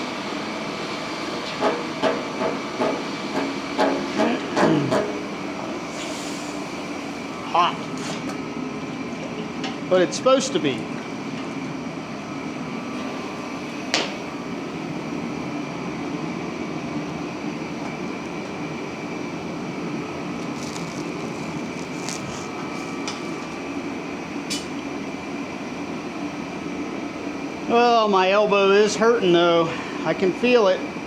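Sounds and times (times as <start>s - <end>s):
gas forge humming: 0.0s - 30.7s
recirculating pump: 4.1s - 11.3s, 12.4s - 24.2s.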